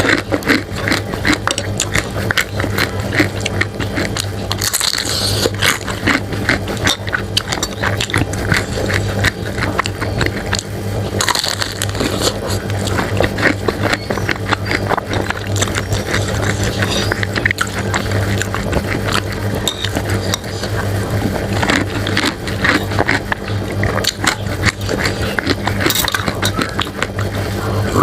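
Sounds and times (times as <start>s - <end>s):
chewing food: 0.0s - 28.0s
low hum: 0.0s - 28.0s
slurping: 0.0s - 28.0s
spoon scraping a bowl: 19.6s - 20.7s.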